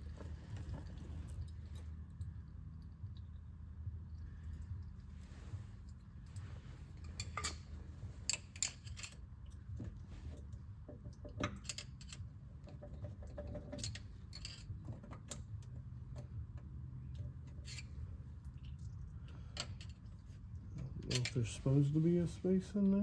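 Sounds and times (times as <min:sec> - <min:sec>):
steady low hum: 0:00.0 - 0:23.0
light metallic clicks and clinks: 0:05.8 - 0:09.7.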